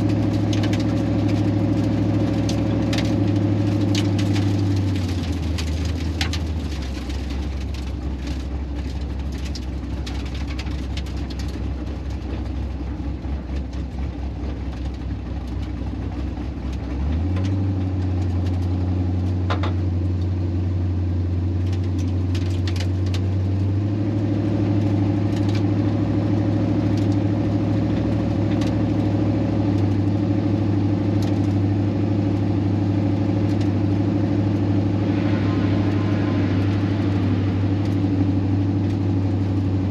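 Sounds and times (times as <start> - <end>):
vee eight engine running: 24.1 - 39.9.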